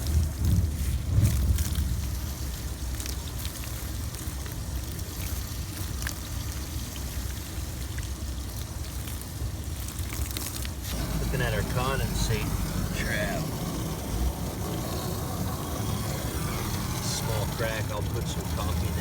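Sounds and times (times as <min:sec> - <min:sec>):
hose water splashing on metal: 0:00.0 - 0:19.0.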